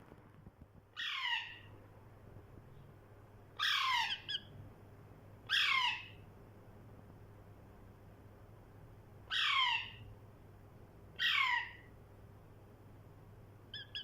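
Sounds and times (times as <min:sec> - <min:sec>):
parrot calling: 0:01.0 - 0:01.7, 0:03.6 - 0:04.5, 0:05.5 - 0:06.2, 0:09.3 - 0:10.0, 0:11.2 - 0:11.9, 0:13.7 - 0:14.0.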